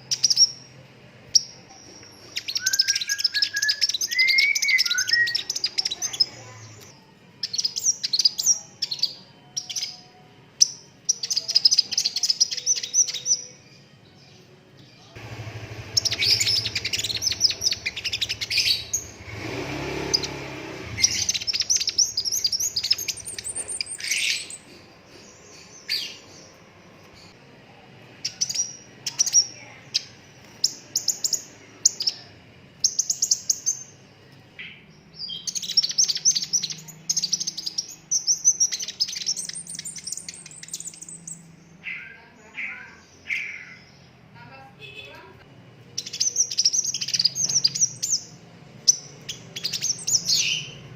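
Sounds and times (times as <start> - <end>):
sharp bird chirps: 0.0 - 13.6, 15.8 - 27.4, 34.6 - 44.1, 46.0 - 50.9
bird trilling: 1.3 - 13.6, 15.8 - 24.8, 34.6 - 44.1, 46.0 - 50.9.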